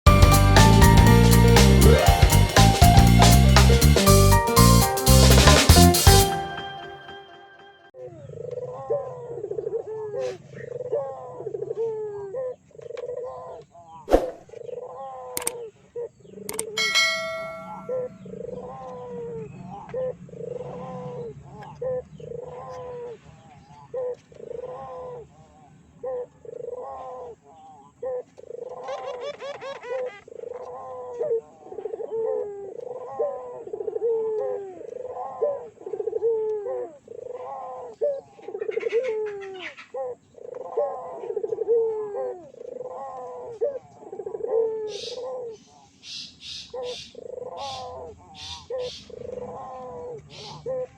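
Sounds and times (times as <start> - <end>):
brief chime: 6.2 - 8.0, 16.8 - 18.2
doves cooing: 8.2 - 13.6, 28.0 - 45.6.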